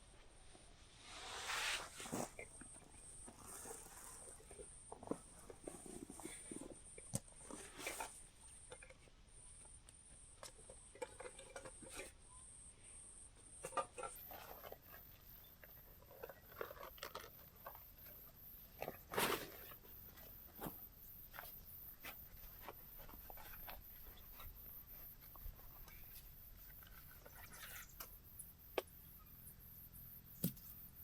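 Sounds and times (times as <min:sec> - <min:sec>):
rustling and light knocks: 0:30.3 - 0:31.0.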